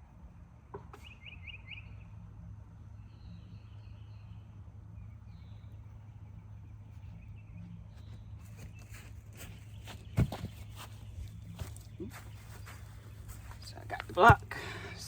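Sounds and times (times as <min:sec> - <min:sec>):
steady low hum: 0:00.0 - 0:15.0
birds chirping and warbling: 0:00.8 - 0:15.0.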